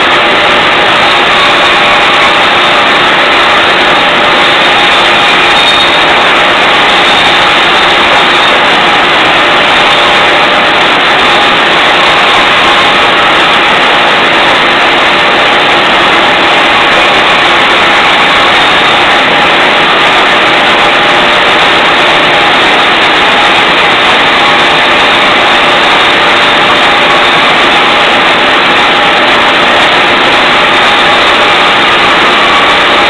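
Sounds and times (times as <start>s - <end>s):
band saw cutting wood: 0.0s - 33.0s.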